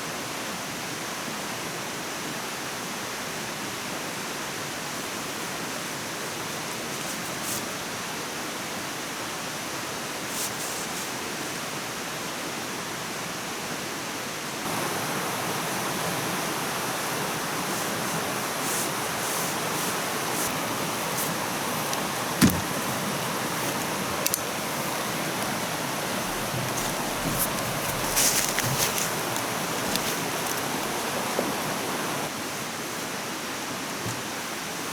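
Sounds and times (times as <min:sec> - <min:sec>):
sharp knock: 0:22.4 - 0:22.7.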